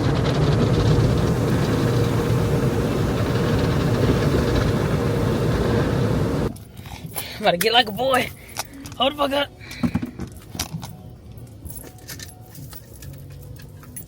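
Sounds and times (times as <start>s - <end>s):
car wash water spray and machinery: 0.0s - 6.5s.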